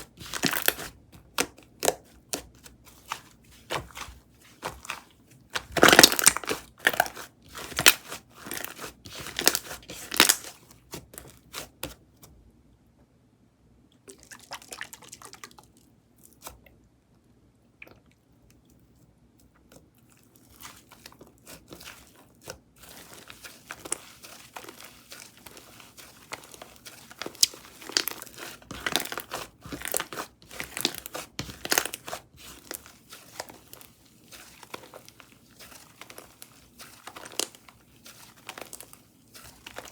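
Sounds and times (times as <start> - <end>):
slime crunching and crackling: 0.0 - 11.9, 20.4 - 39.9.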